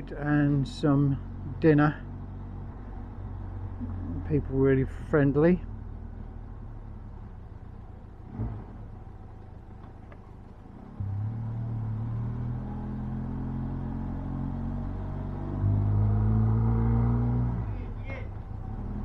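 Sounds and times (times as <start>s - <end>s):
motorcycle engine revving: 10.5s - 19.0s.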